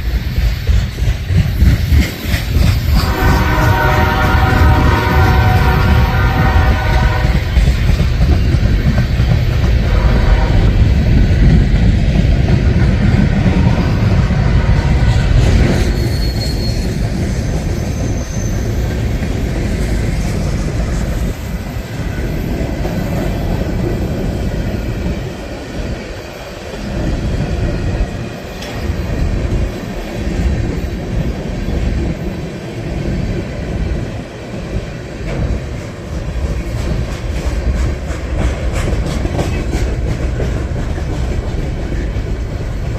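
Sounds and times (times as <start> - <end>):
freight train wheels clattering: 0.0 - 42.9
high wheel squeals: 15.6 - 19.2.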